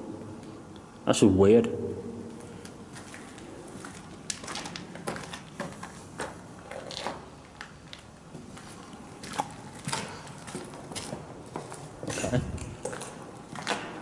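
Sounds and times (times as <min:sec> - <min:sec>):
footsteps crunching on debris: 0:02.9 - 0:14.0.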